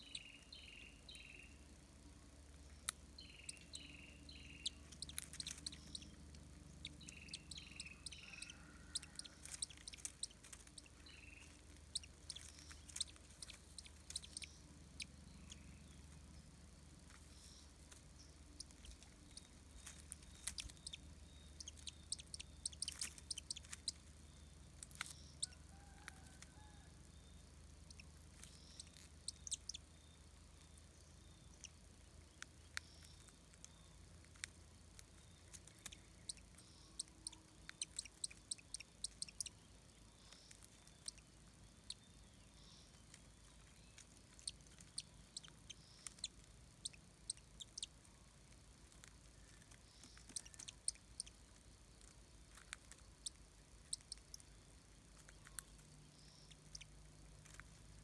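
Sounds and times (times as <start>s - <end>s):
faint bird chirps: 0.0s - 58.0s
bird of prey tearing at food: 4.8s - 5.9s, 8.2s - 14.3s, 17.0s - 20.9s, 22.8s - 24.0s, 48.5s - 51.1s.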